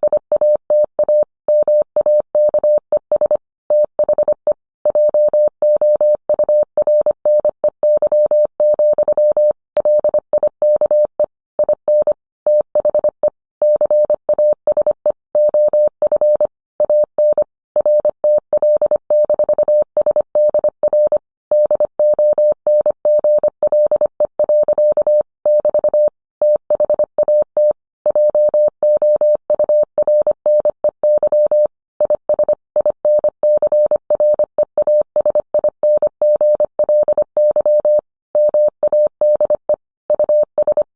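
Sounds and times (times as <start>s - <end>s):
morse code tone: 21.6s - 40.9s.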